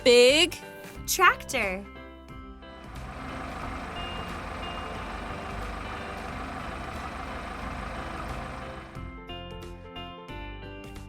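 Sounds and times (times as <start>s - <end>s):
background music: 0.0s - 10.0s
tractor engine running: 2.9s - 9.1s.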